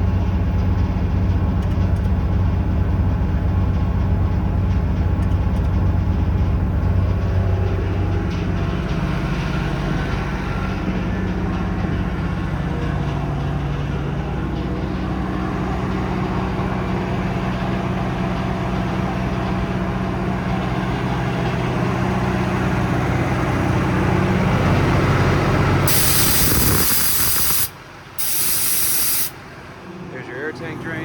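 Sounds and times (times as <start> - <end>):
diesel engine humming: 0.0 - 31.0
compressed air hissing: 25.9 - 29.4.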